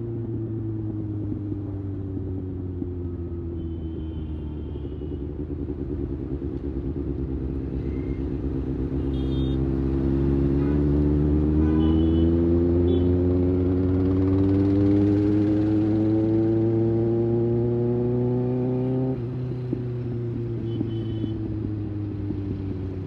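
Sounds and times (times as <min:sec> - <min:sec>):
motorcycle engine accelerating: 0:05.4 - 0:23.0.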